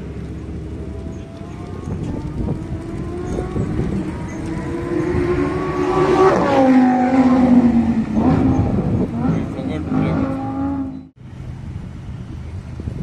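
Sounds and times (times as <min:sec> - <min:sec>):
sports car driving past: 0:00.2 - 0:11.1.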